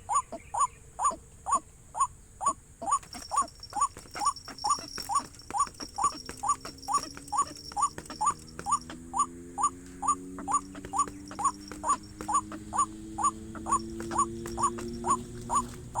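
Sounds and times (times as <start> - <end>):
waterhen calling: 0.0 - 16.0.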